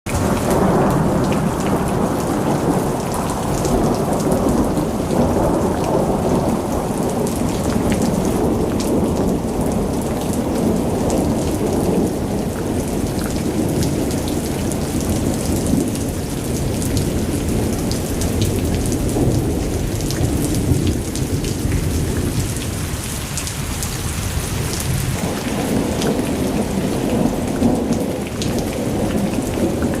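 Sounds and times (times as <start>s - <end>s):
heavy rain: 0.1s - 30.0s
rain drops ticking: 0.1s - 30.0s.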